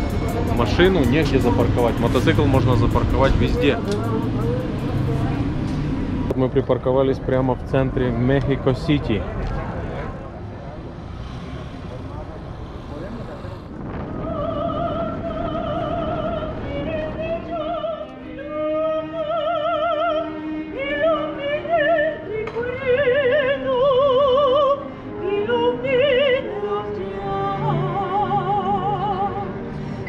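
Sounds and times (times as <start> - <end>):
operatic singing: 13.7 - 30.0.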